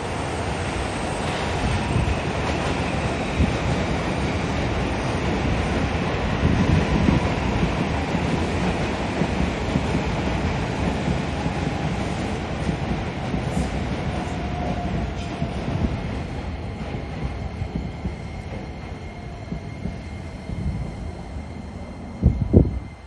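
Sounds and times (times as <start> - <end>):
electric train rumbling past: 0.0 - 23.0.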